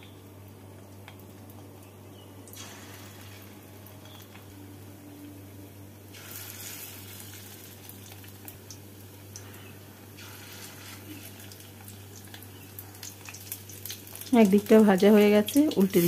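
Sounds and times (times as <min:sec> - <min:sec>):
fritters sizzling in hot oil: 0:00.0 - 0:04.8, 0:05.4 - 0:16.0.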